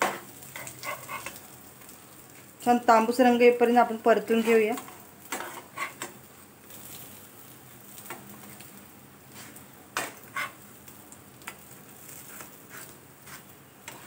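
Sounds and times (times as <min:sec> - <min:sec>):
spatula scraping a pan: 0:00.0 - 0:01.5, 0:04.3 - 0:07.1, 0:09.3 - 0:10.6, 0:12.0 - 0:14.0
food sizzling in oil: 0:00.0 - 0:14.0.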